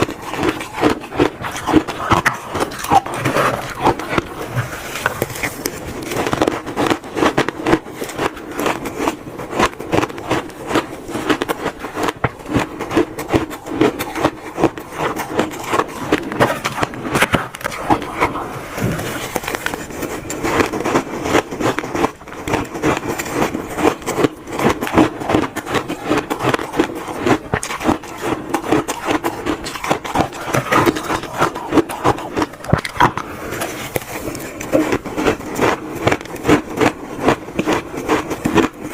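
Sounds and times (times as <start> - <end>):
chewing crunchy shaved ice: 0.0 - 38.9.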